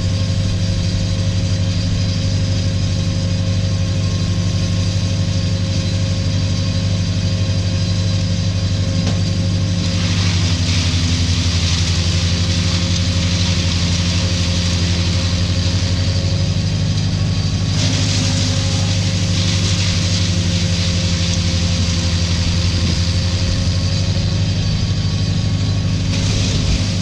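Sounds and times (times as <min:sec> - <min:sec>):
large engine running steadily: 0:00.0 - 0:27.0
hiss: 0:26.1 - 0:27.0.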